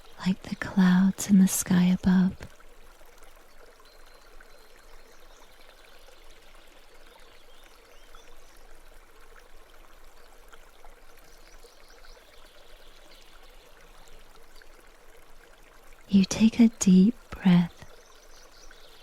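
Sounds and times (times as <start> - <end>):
brook water trickling: 0.0 - 19.0.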